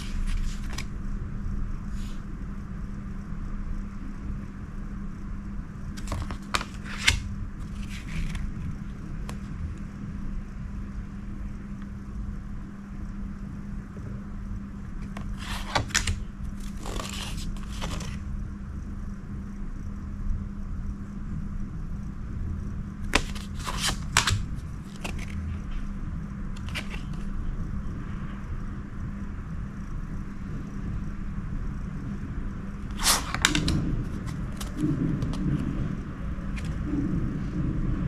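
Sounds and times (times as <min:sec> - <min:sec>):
steady low hum: 0:00.0 - 0:38.0
packaging scraping and rustling: 0:06.0 - 0:08.7, 0:15.0 - 0:18.2, 0:23.2 - 0:25.4, 0:26.6 - 0:27.2, 0:32.9 - 0:35.4.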